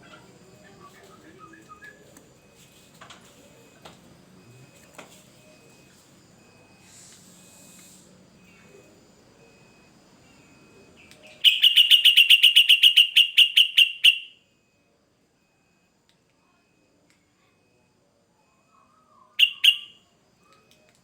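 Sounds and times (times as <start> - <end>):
bird singing repeated notes: 11.2 - 14.3, 19.4 - 19.9.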